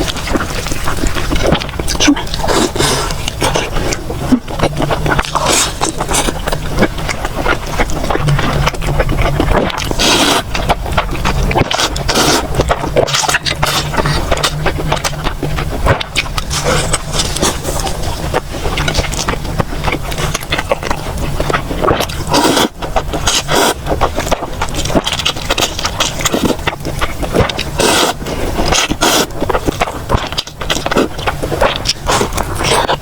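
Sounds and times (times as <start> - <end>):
chewing with wet clicks: 0.0 - 33.0.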